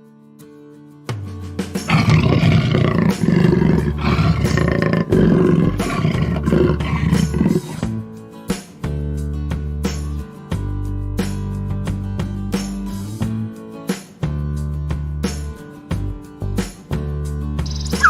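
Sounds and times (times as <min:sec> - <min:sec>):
background music: 0:01.2 - 0:18.0
big cat roaring: 0:01.9 - 0:07.9.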